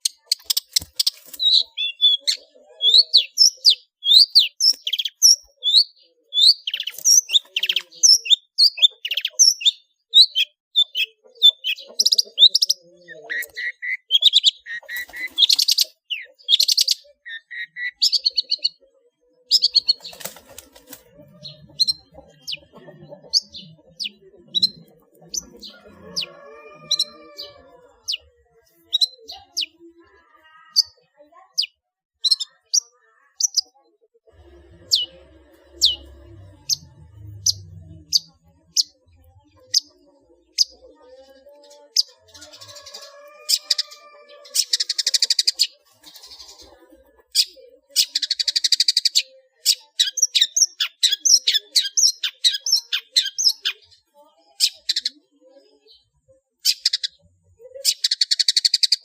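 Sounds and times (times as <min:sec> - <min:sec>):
bird singing mimicked calls: 0:00.0 - 0:29.9, 0:47.3 - 0:54.0.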